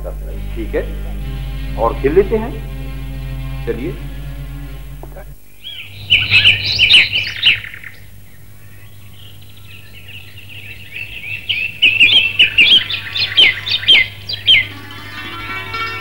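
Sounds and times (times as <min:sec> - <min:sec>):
low hum: 0:00.0 - 0:07.6
birds chirping: 0:00.0 - 0:16.0.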